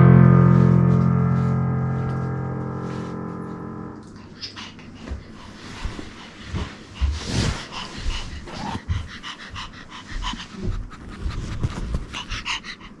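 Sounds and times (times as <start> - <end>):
dog panting: 4.1 - 13.0.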